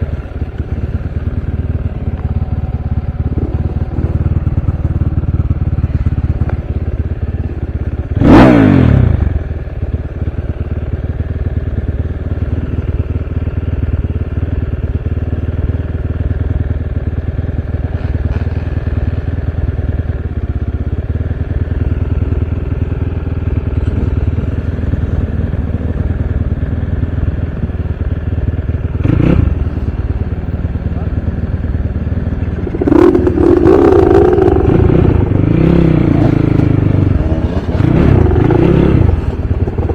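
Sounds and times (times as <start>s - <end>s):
dirt bike engine revving: 8.2s - 9.3s, 32.4s - 39.9s.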